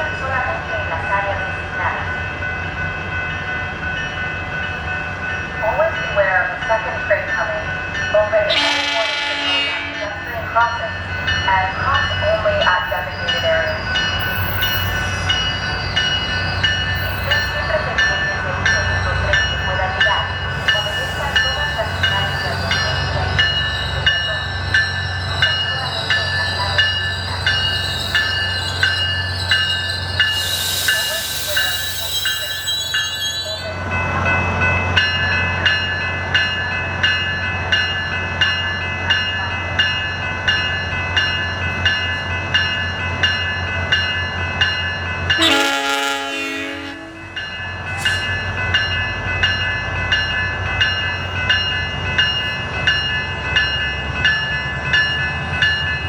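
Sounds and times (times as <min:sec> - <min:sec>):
train bell ringing: 0:00.0 - 0:56.0
train horn blast: 0:08.5 - 0:10.2, 0:45.4 - 0:47.4.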